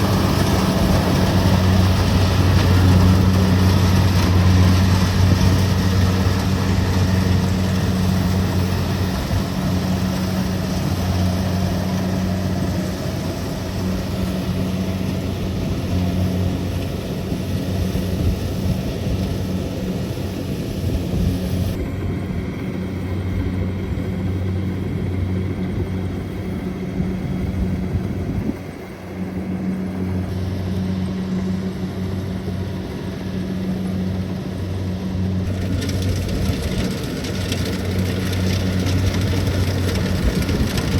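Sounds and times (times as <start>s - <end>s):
combine harvester diesel engine: 0.0s - 40.9s.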